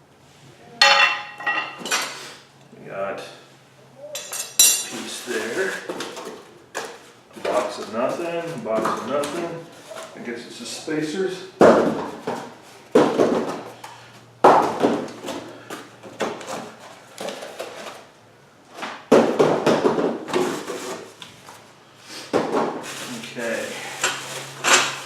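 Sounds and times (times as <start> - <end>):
knocking: 0.8 - 1.8
metal parts clunking: 0.8 - 2.1.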